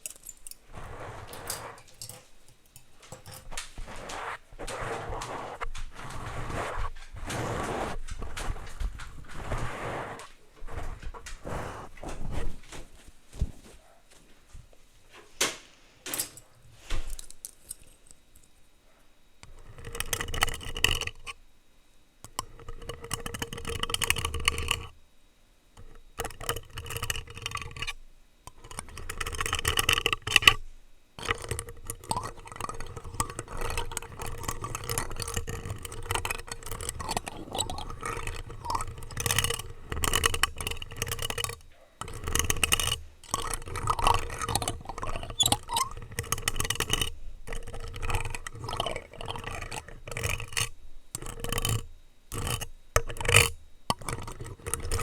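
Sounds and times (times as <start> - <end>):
plastic utensils scraping microphone: 0.0 - 2.4, 3.0 - 12.8, 19.4 - 21.4, 22.2 - 25.0, 25.8 - 30.6, 31.2 - 55.0.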